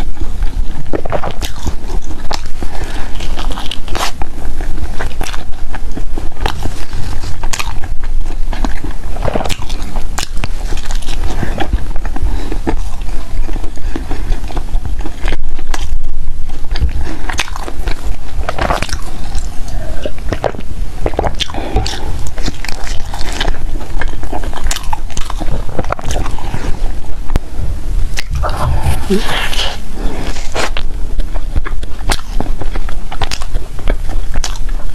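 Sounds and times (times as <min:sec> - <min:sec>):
person chewing bread: 0:00.0 - 0:34.9.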